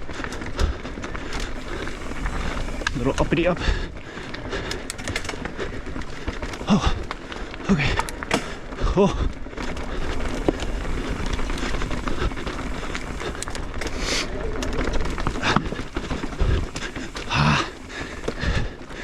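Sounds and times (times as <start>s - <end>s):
bike clattering over rocks: 0.4s - 19.0s.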